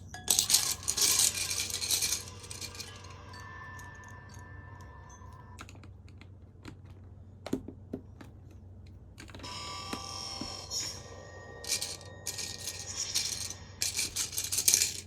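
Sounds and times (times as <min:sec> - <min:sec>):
plastic bricks clicking together: 0:00.3 - 0:03.1, 0:11.7 - 0:15.0.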